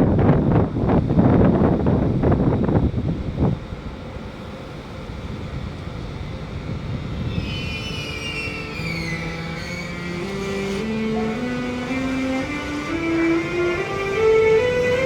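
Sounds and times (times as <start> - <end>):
electric train low rumble: 0.0 - 15.0
electric train whines: 0.0 - 15.0
traction motor rising tones: 3.8 - 15.0.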